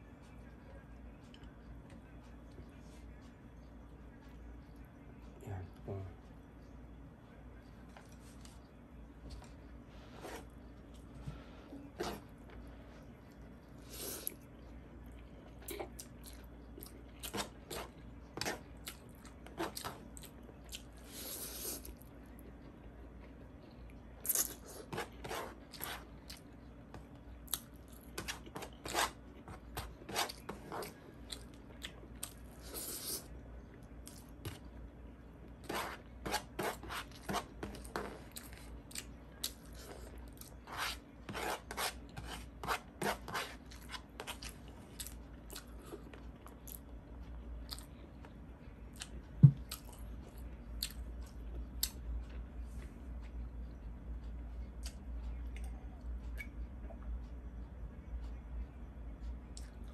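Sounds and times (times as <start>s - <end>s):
chewing and crunching food: 10.8s - 34.8s, 35.4s - 41.2s, 43.6s - 57.3s, 59.4s - 59.9s.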